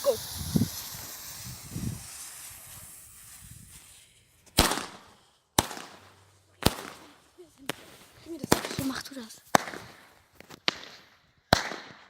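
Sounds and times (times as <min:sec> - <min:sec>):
firecracker hiss: 0:00.0 - 0:11.7
firecracker bangs: 0:04.5 - 0:07.0, 0:08.5 - 0:12.0.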